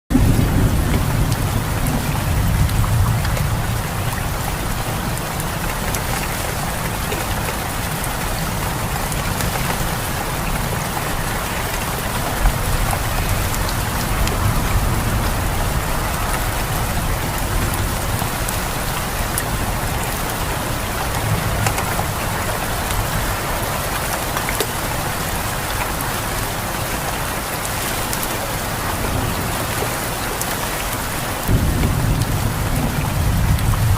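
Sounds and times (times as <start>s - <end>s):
rain hissing: 0.1s - 33.9s
raindrops ticking: 0.1s - 33.9s.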